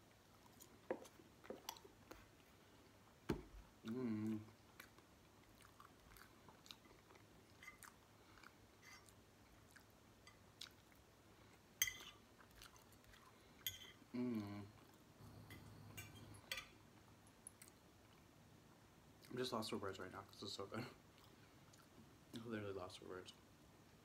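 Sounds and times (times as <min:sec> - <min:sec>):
chewing fries: 0:03.7 - 0:15.8, 0:17.4 - 0:18.4, 0:20.3 - 0:22.4
person humming: 0:03.8 - 0:04.5, 0:14.1 - 0:14.8.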